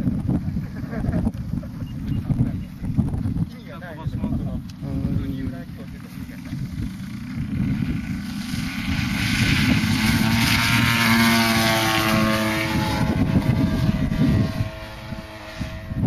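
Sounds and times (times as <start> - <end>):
model airplane engine flying by: 0.0 - 16.0.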